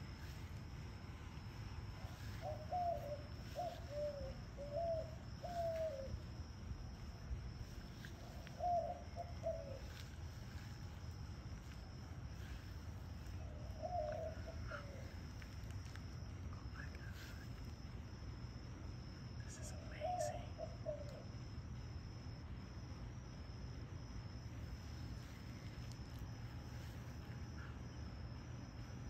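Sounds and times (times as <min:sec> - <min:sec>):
bird cooing: 0:02.0 - 0:06.2, 0:08.2 - 0:10.0, 0:13.4 - 0:15.3, 0:19.5 - 0:21.3.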